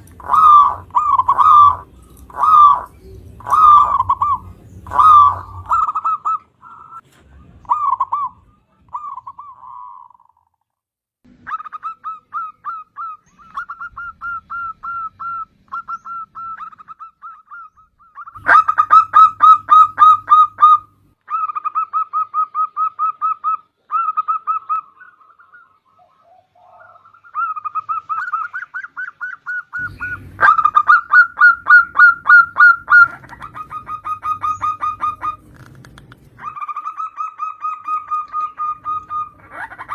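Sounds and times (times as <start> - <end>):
dove cooing: 0.0 - 10.5, 11.3 - 39.9.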